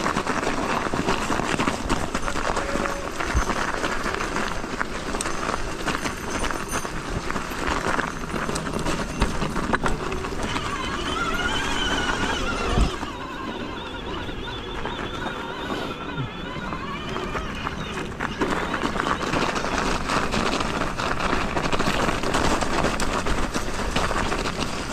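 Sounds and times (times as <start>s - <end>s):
bike rattling and knocking: 0.0s - 24.9s
tyre and trail noise: 0.0s - 24.9s
wavering whine: 5.2s - 20.4s.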